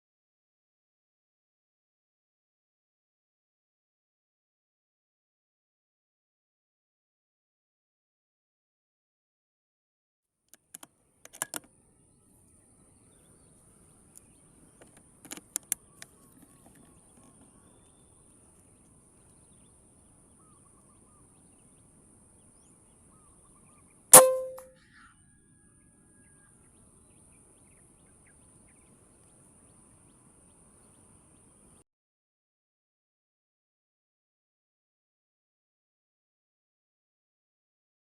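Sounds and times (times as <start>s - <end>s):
air rifle shot: 24.2s - 24.6s.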